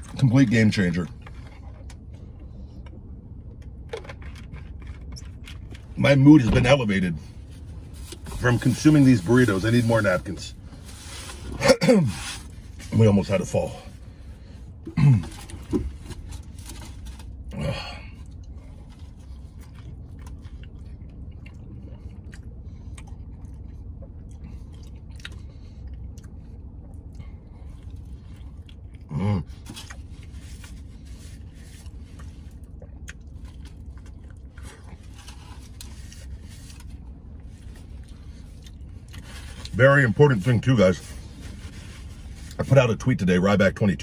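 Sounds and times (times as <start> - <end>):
steady low hum: 0.0 - 44.0
man chewing food: 1.1 - 6.0, 13.9 - 39.8
wet chewing clicks: 19.3 - 29.1.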